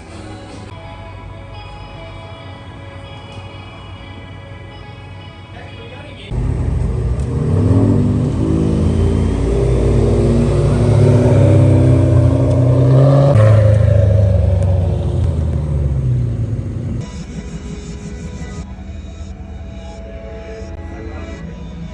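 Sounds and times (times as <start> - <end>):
car engine accelerating hard: 6.3 - 18.6.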